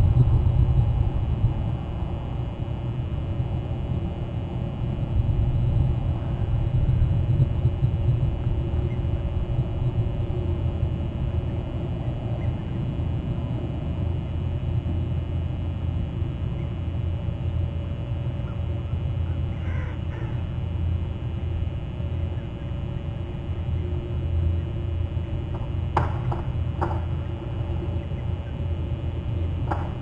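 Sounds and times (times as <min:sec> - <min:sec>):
steady low rumble: 0:00.0 - 0:30.0
crows cawing: 0:18.4 - 0:20.5.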